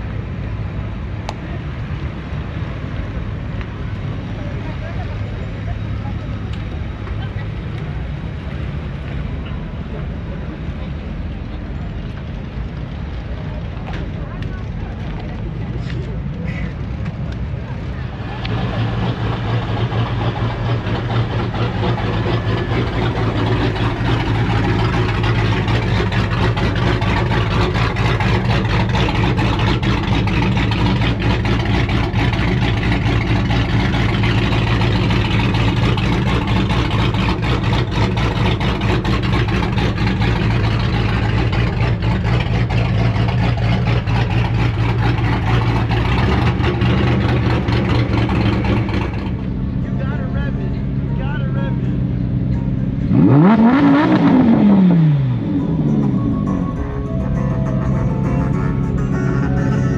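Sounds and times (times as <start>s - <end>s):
loud engine idling: 13.3s - 59.9s.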